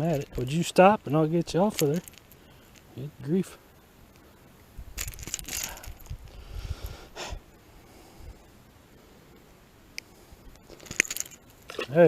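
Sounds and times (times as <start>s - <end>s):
handling rustles: 0.0s - 3.1s, 4.9s - 6.3s, 10.5s - 12.0s.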